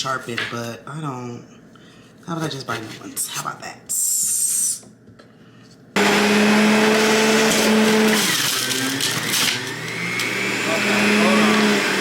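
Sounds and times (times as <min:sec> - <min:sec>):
electric juicer motor humming: 0:06.0 - 0:12.0.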